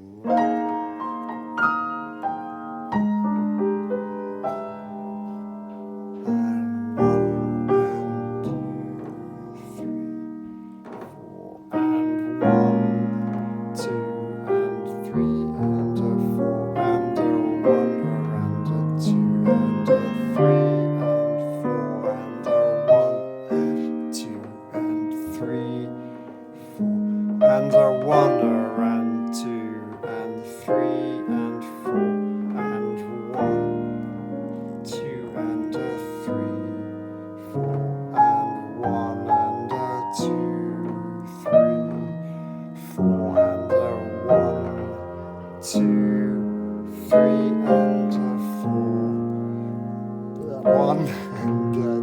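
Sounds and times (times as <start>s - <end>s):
piano playing slow chords: 0.0s - 52.0s.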